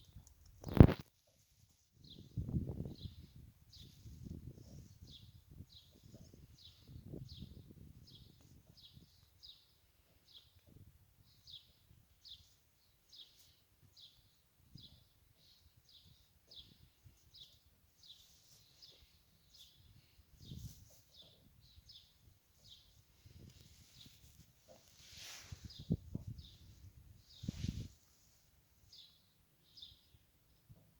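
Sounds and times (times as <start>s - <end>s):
small songbird chirping: 2.0s - 30.8s.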